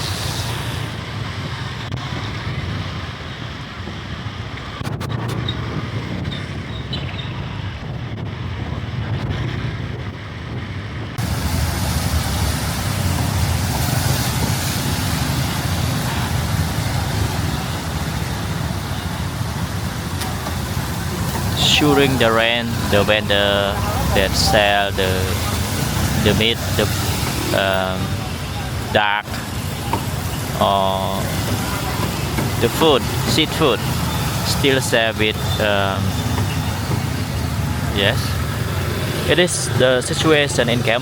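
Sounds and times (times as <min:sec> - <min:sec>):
heavy rain: 0:00.0 - 0:05.7, 0:10.7 - 0:41.0
wind rumble on microphone: 0:00.0 - 0:21.6
road traffic on wet street: 0:00.0 - 0:41.0.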